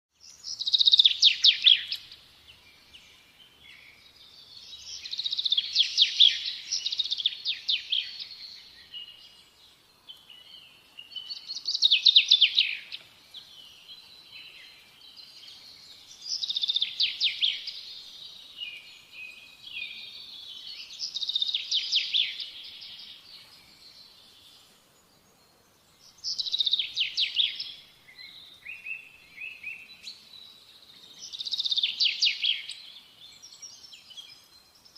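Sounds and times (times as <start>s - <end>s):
soft bird twittering: 0.2s - 34.9s
songbird trilling: 0.3s - 2.2s, 3.7s - 9.3s, 10.4s - 23.2s, 26.1s - 30.3s.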